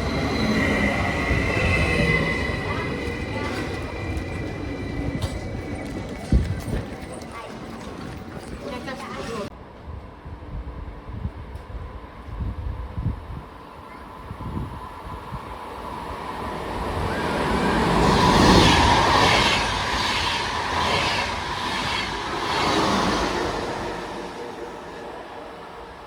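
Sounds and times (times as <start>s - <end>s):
rail vehicle passing: 0.0s - 26.0s
wheels rattling: 1.0s - 9.5s.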